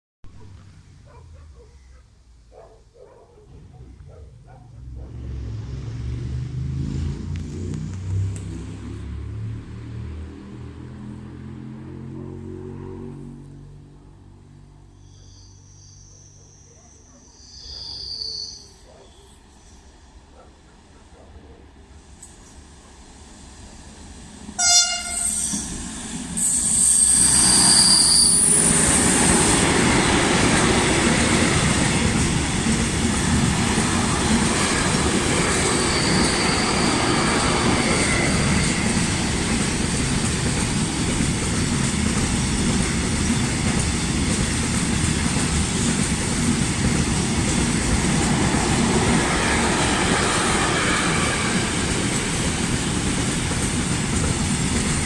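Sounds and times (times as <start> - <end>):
high-pitched wheel squeal: 14.9 - 19.9, 26.4 - 29.3, 35.3 - 39.1
train horn note: 24.6 - 25.8
freight wagons rumbling past: 25.6 - 55.0.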